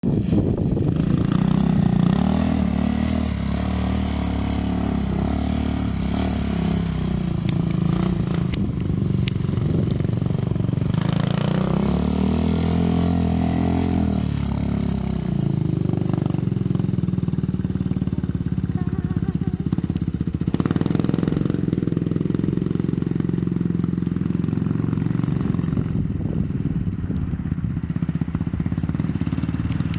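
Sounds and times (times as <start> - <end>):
quad engine revving: 0.0 - 26.9
sharp ticks: 8.4 - 10.5, 29.5 - 29.9.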